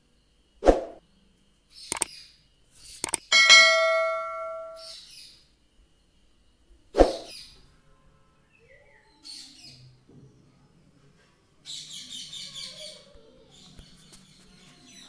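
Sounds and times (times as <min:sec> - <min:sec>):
birds chirping: 0:01.0 - 0:05.4.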